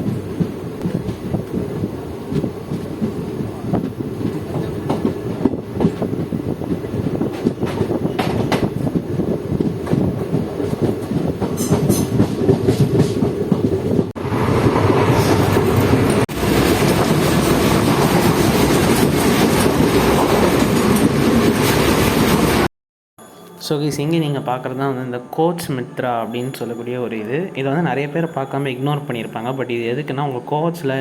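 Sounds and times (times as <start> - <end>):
train rumble: 0.0 - 22.7.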